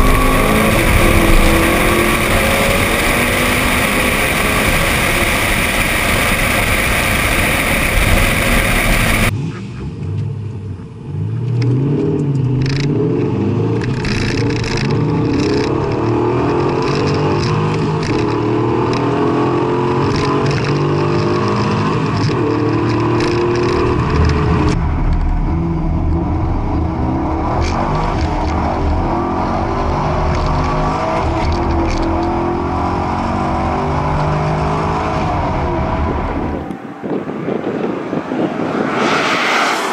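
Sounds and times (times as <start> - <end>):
loud noisy rush: 0.0 - 9.4, 34.4 - 39.9
car engines revving hard: 0.0 - 10.4, 11.0 - 36.6, 37.5 - 39.9.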